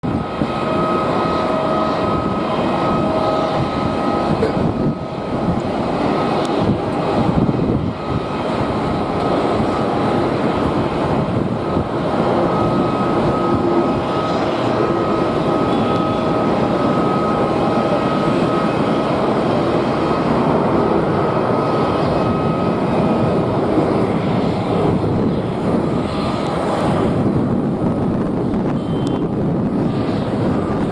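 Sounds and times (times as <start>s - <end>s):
jet engines whining: 0.0s - 30.9s
wind buffeting microphone: 0.0s - 30.9s.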